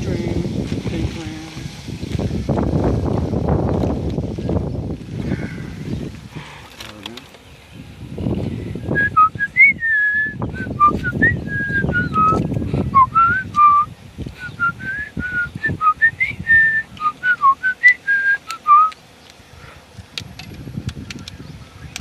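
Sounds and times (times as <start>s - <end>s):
person whistling a tune: 9.0s - 18.9s.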